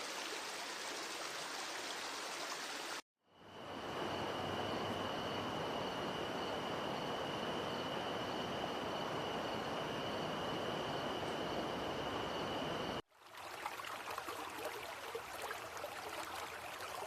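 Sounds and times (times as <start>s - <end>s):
rainforest rushing noise: 0.0s - 12.8s.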